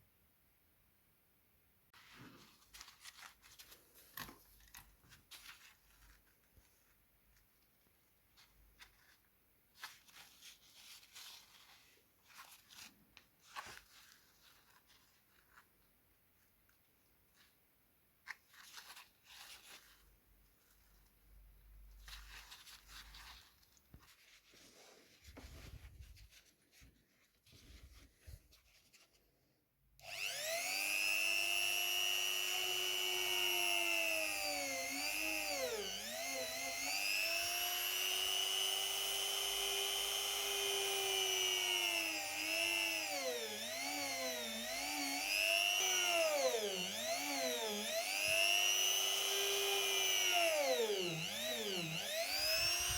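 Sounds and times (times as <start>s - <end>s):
handling and rubbing noises: 2.0s - 29.5s
power tool high whine: 30.0s - 52.9s.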